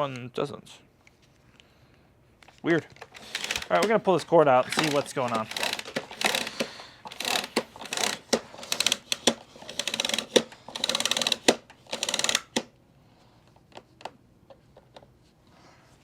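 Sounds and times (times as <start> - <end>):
vacuum cord reel clicking rattle: 3.0 - 12.7.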